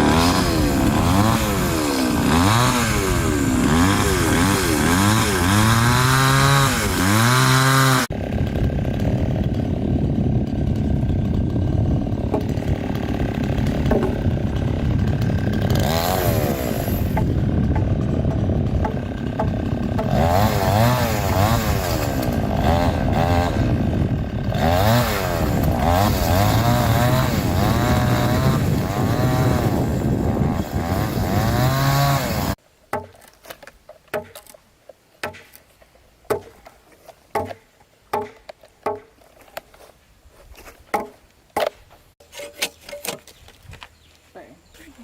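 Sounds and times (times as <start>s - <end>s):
chainsaw cutting wood: 0.0s - 34.6s, 36.3s - 39.7s, 40.9s - 44.0s
sharp knocks: 12.3s - 14.3s, 17.1s - 20.4s, 32.9s - 33.3s, 34.1s - 34.5s, 35.2s - 35.6s, 36.3s - 36.6s, 37.3s - 39.2s, 40.9s - 41.8s.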